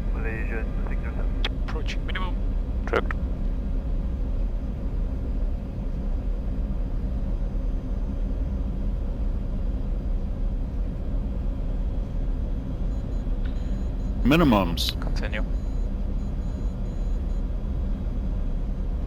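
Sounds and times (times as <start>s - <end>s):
faint steady hum: 0.0s - 19.0s
aircraft cockpit rumble: 0.2s - 4.0s, 14.2s - 15.4s.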